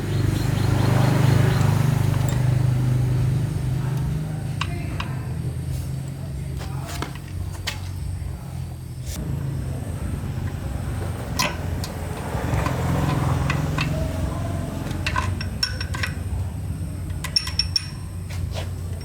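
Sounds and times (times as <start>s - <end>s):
metal tools clinking: 1.6s - 3.0s, 10.4s - 19.0s.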